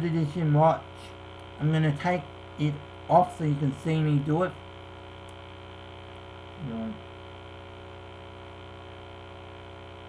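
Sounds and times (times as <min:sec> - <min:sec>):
electrical mains hum: 0:00.0 - 0:10.0
person murmuring: 0:06.6 - 0:07.0.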